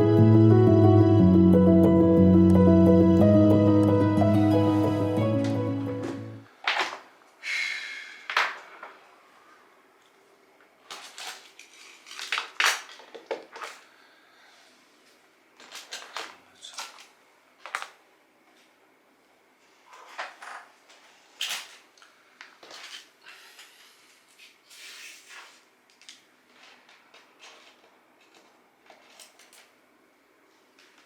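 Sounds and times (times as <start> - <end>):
objects rustling and clattering: 5.3 - 7.2, 8.2 - 9.1, 10.1 - 14.0, 15.0 - 18.8, 19.7 - 29.8.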